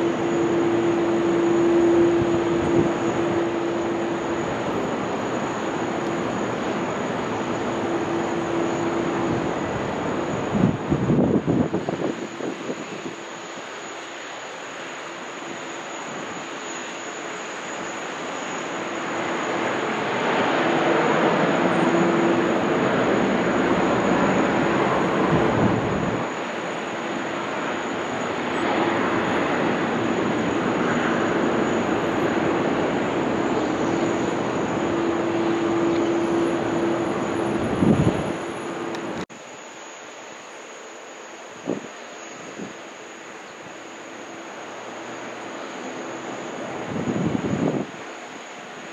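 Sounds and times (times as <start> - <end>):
low hum: 0.0 - 10.9, 28.5 - 39.3
jet engines running: 0.0 - 48.9.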